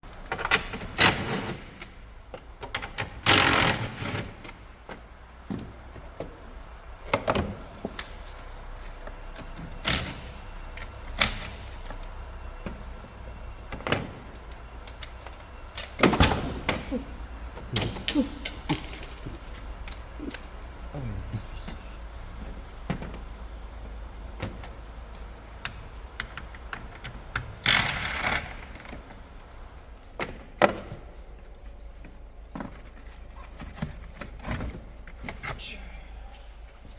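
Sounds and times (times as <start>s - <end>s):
tools knocking and clicking: 18.0s - 19.4s.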